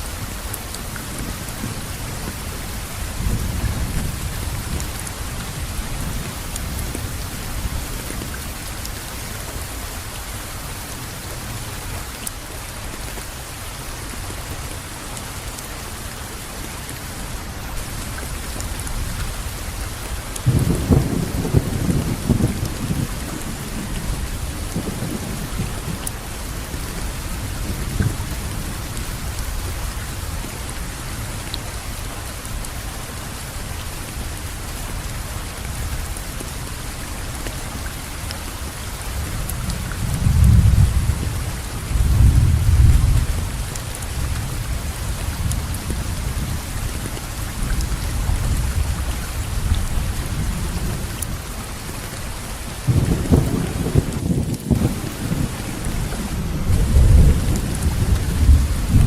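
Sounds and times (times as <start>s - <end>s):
steady rainfall: 0.0s - 59.0s
thunder rumbles: 19.0s - 29.4s, 39.2s - 46.7s, 52.8s - 59.0s.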